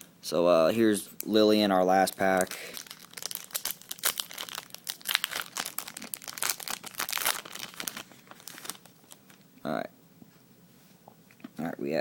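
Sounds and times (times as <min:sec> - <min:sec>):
foil wrapper crinkling and tearing: 0:02.0 - 0:09.4.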